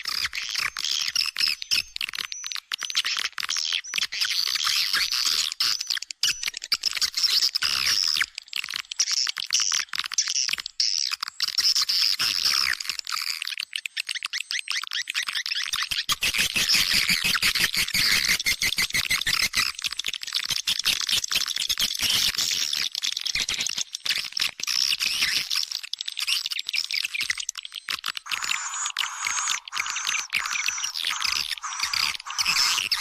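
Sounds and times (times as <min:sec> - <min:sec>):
swiftlet chirps and twitters: 0:28.2 - 0:33.0.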